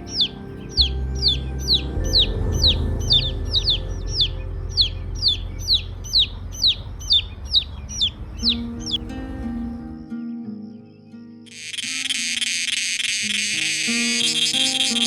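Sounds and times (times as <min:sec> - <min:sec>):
low steady drone: 0:00.0 - 0:10.4
bird chirping: 0:00.0 - 0:15.0.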